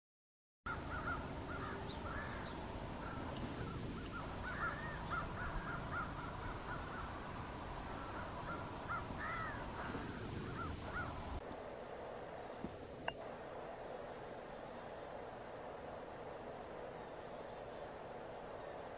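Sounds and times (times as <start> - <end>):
wild birds calling: 0.7 - 11.4
faint steady tone: 11.1 - 18.9.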